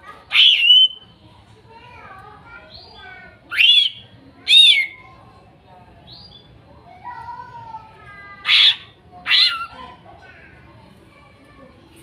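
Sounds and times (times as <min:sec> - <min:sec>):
bird whistling and calling: 0:00.3 - 0:01.1, 0:03.5 - 0:05.0, 0:08.5 - 0:09.7.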